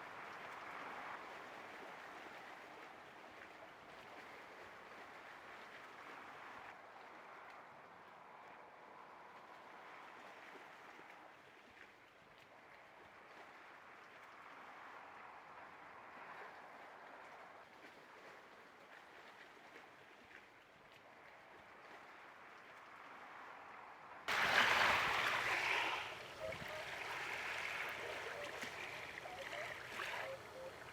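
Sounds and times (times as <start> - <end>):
flowing water: 0.0 - 30.9
loud burst of water noise: 24.3 - 30.7.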